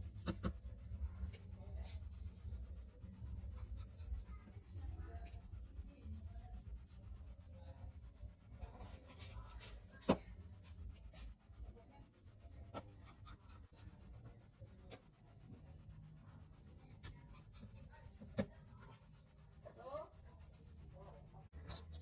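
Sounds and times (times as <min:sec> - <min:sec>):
tools scratching and clicking: 0:00.0 - 0:01.4, 0:17.0 - 0:19.0, 0:20.4 - 0:22.0.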